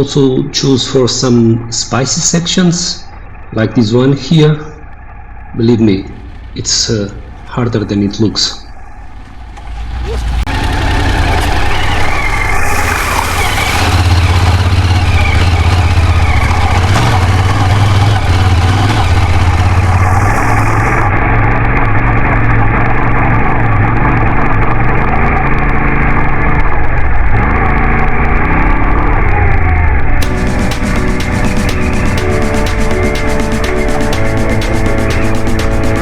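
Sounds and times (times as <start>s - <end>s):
motorcycle engine running: 0.0s - 36.0s
hissing rush: 9.1s - 21.2s.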